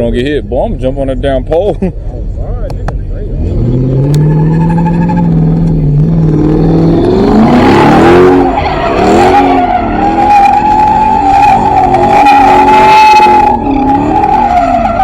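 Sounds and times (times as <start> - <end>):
car engine revving: 2.1 - 15.0
tires squealing: 3.2 - 15.0.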